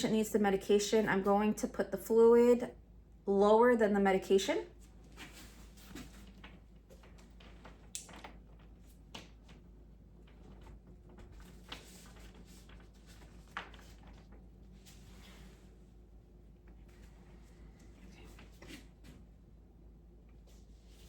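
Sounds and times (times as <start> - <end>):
plastic bags and tubing clicking: 6.0 - 14.5.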